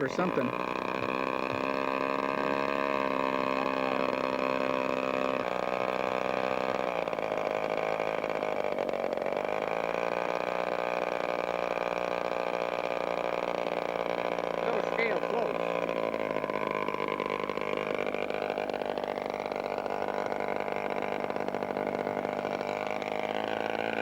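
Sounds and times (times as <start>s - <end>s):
model plane engine running: 0.0s - 24.0s.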